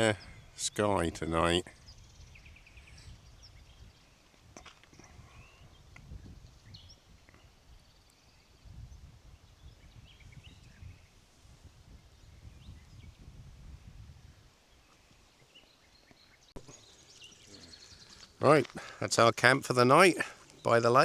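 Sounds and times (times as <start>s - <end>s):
low wind rumble: 0.0s - 4.4s, 5.0s - 14.8s
distant bird chirps: 0.0s - 11.3s, 14.3s - 21.0s.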